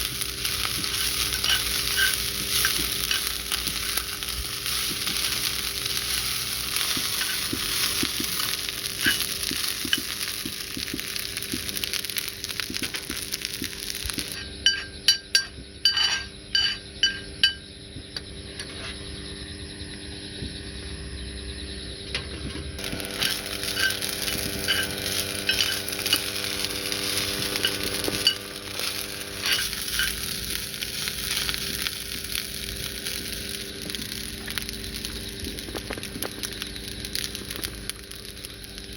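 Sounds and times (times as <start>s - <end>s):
food sizzling in a pan: 0.0s - 14.9s, 22.8s - 38.9s
sharp metal clinks: 14.2s - 17.7s, 22.8s - 30.4s.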